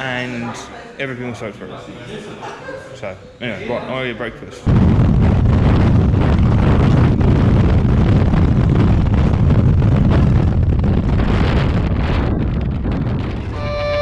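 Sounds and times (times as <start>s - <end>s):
wind buffeting microphone: 4.7s - 14.0s.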